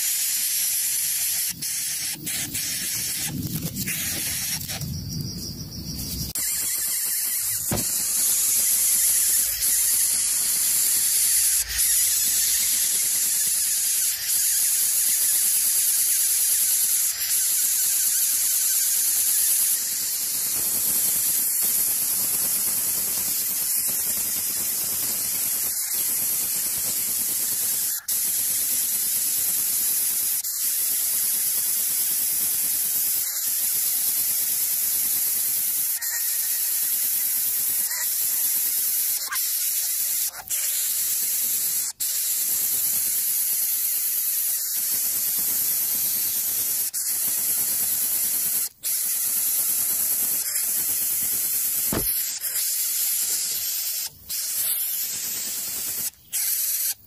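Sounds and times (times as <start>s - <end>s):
loud static-like hiss: 0.0s - 15.4s, 49.2s - 52.4s.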